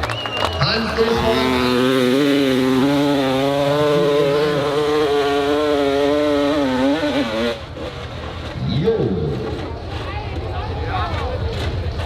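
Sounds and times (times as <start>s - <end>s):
dirt bike engine at high revs: 0.6s - 9.8s.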